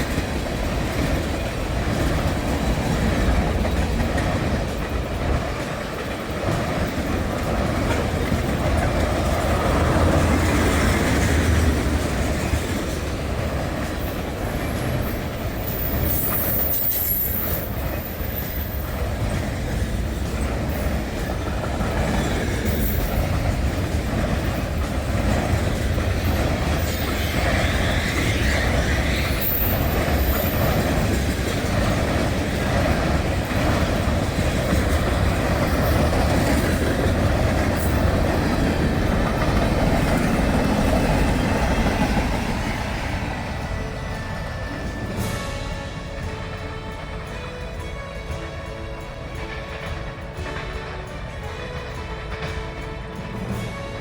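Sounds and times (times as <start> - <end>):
train wheels rumbling on rails: 0.0 - 54.0
high wheel squeals: 6.5 - 19.7, 20.4 - 49.0.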